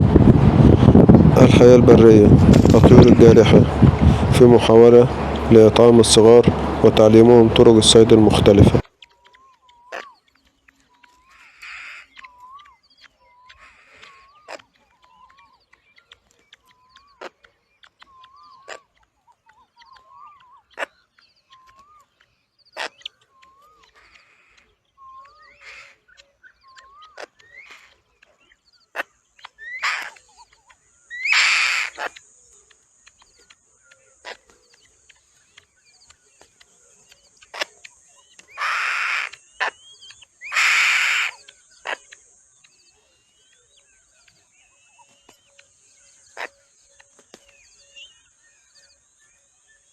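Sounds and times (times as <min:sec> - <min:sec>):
birds hissing screeches: 0:00.0 - 0:49.9
bird short call: 0:28.9 - 0:32.2, 0:37.4 - 0:42.2.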